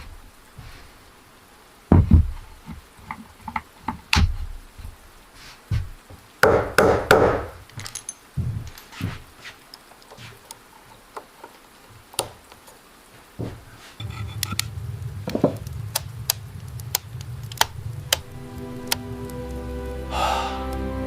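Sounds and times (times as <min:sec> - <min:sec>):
low steady rumble: 0:14.0 - 0:20.2
sharp rapid clicks: 0:14.4 - 0:19.1.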